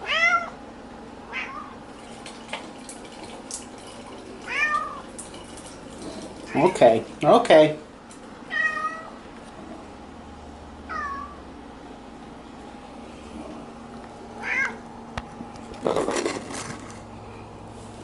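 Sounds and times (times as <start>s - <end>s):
cat meowing: 0.0s - 0.6s, 1.3s - 1.8s, 8.5s - 9.2s, 10.9s - 11.4s, 14.4s - 14.8s.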